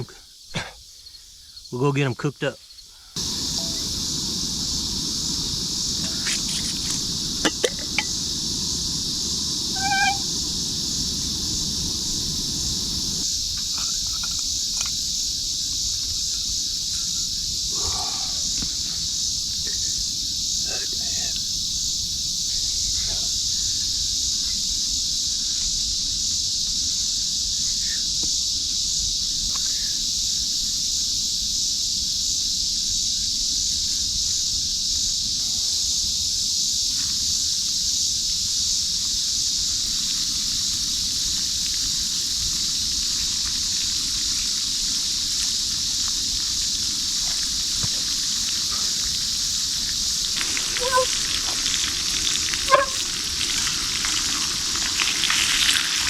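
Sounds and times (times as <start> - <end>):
high-pitched hiss: 0.0 - 56.0
fish frying with crackling sizzle: 3.2 - 17.6, 38.9 - 56.0.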